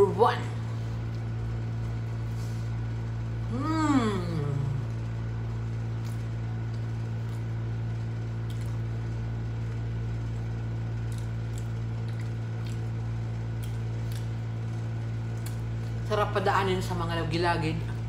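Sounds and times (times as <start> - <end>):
steady low hum: 0.0 - 18.0
person chewing with mouth closed: 5.8 - 9.0, 11.0 - 14.4.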